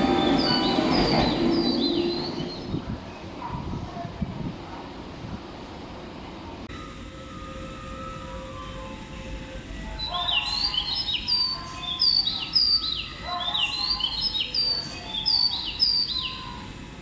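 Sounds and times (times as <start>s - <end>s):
birds chirping: 0.0s - 3.6s, 7.4s - 16.9s
low background noise: 0.0s - 17.0s.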